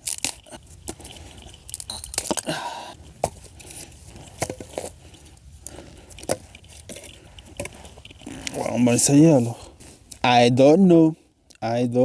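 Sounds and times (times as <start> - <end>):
dry twigs crunching and snapping: 0.0 - 9.0.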